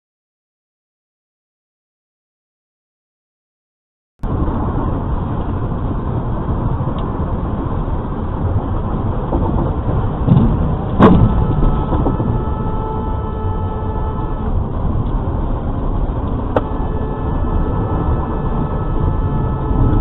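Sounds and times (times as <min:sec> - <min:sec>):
road and engine noise inside car: 0:04.2 - 0:20.0
sharp bang: 0:10.3 - 0:14.5.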